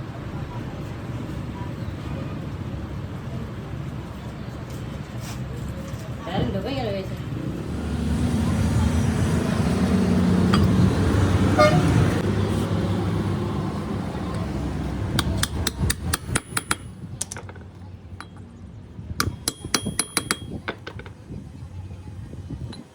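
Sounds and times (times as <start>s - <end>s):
low motor rumble: 0.0s - 22.9s
light metallic taps and clinks: 10.5s - 10.9s, 19.2s - 21.2s.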